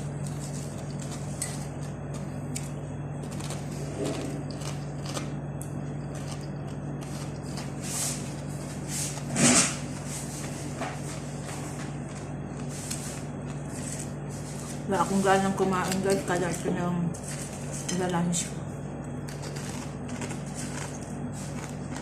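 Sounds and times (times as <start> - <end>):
steady low hum: 0.0 - 22.0
crunchy snack being chewed: 0.1 - 8.5, 19.2 - 22.0.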